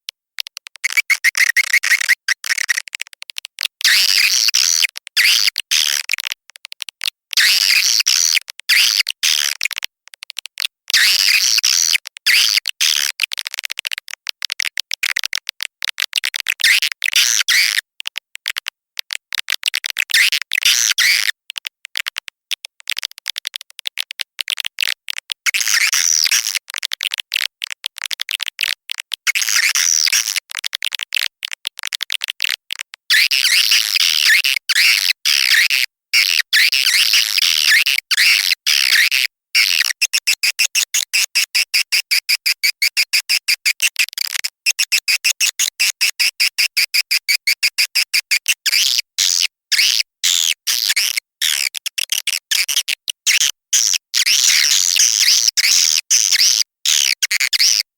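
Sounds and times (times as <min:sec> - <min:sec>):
recorded swiftlet chirps: 0:00.8 - 0:02.8.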